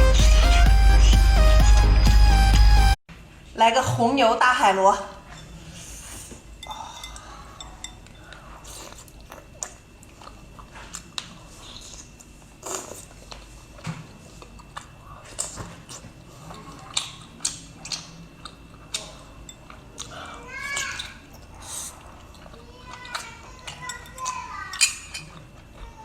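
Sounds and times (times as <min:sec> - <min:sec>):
close chewing and biting: 0:07.1 - 0:25.8.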